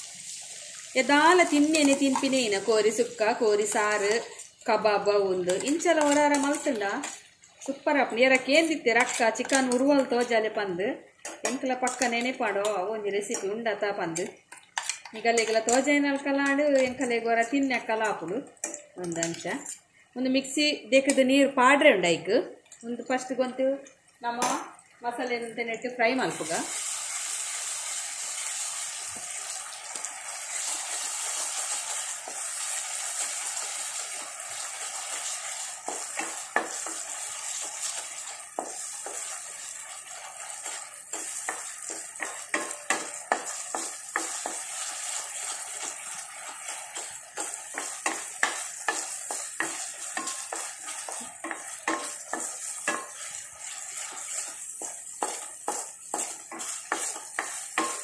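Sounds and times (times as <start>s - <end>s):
paste sizzling in oil: 0.0s - 10.2s, 26.1s - 58.0s
wooden spatula scraping a pan: 30.6s - 58.0s.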